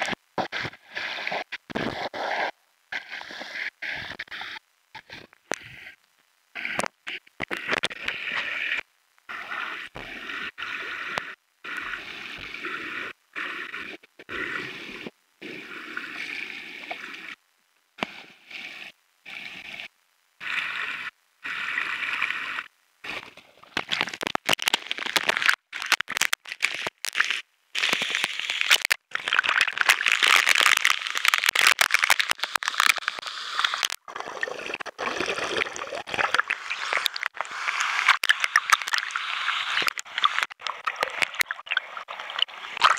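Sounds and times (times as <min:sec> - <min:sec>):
waterfall pouring into a pool: 0:23.9 - 0:42.9.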